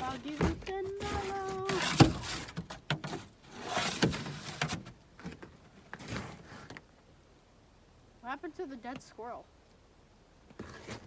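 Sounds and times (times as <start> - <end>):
snow shovel scraping ice: 0.0 - 4.8, 10.6 - 11.0.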